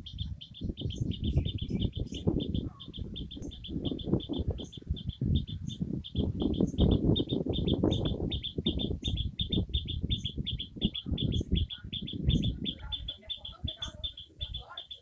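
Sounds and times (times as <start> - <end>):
high bird chirp: 0.0 - 15.0.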